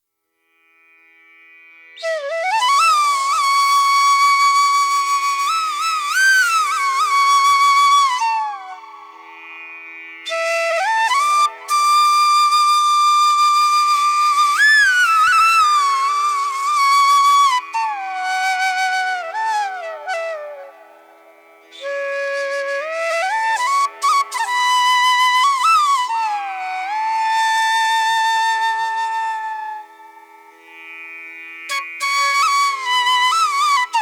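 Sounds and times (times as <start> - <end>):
slow flute melody: 2.0 - 9.5, 10.3 - 30.5, 31.7 - 34.0.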